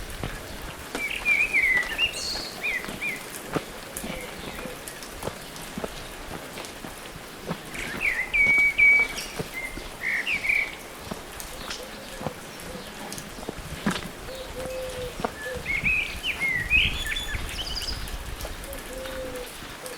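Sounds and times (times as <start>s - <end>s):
songbird chirping and whistling: 1.0s - 3.2s, 7.8s - 10.8s, 14.6s - 18.0s.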